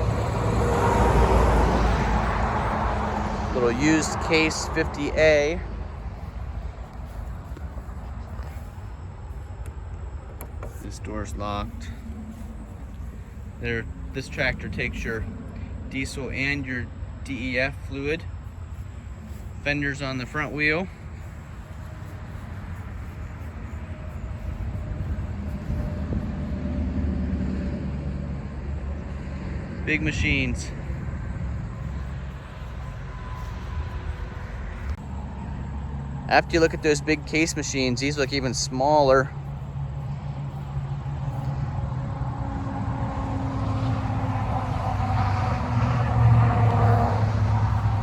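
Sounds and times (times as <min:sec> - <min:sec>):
vehicle engine rumbling: 0:00.0 - 0:48.0
faint steady whine: 0:05.2 - 0:26.3.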